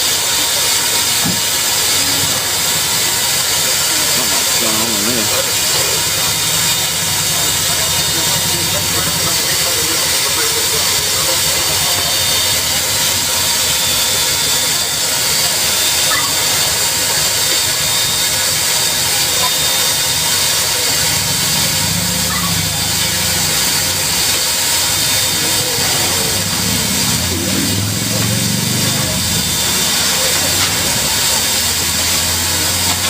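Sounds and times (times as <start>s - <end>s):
steam hissing: 0.0s - 33.0s.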